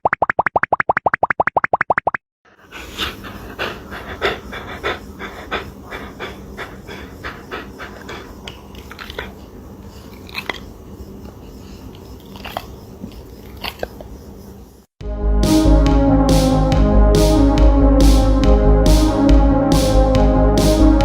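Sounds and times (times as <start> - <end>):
dog panting: 2.5 - 14.1.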